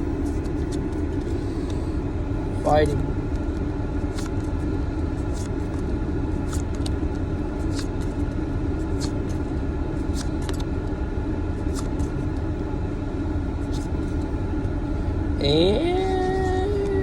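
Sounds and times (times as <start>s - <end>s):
trading cards flipping: 4.0s - 4.5s, 5.2s - 5.8s, 6.4s - 7.0s, 7.6s - 8.2s, 8.8s - 9.4s, 10.0s - 10.7s, 11.6s - 12.2s, 13.6s - 14.3s.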